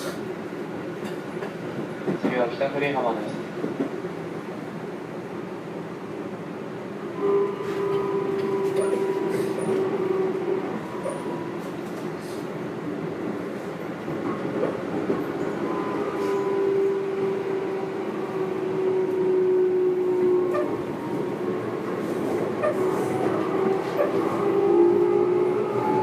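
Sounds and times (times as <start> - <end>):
rail joint clicks: 1.0 - 2.4, 7.5 - 10.1, 20.5 - 24.5
train wheels rumbling: 7.6 - 26.0.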